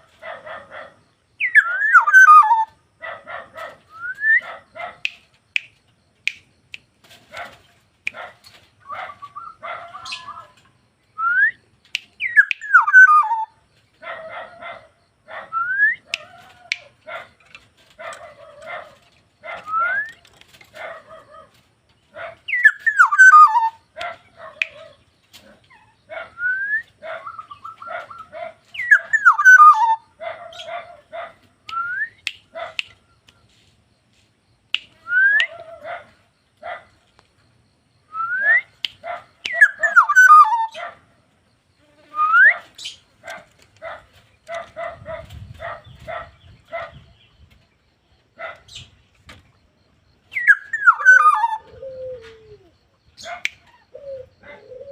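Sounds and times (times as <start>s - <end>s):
bird fluty whistles: 3.9s - 4.5s, 11.2s - 11.6s, 15.5s - 16.1s, 19.6s - 20.2s, 22.5s - 23.7s, 26.4s - 28.2s, 31.7s - 32.3s, 35.0s - 35.6s, 38.1s - 38.8s.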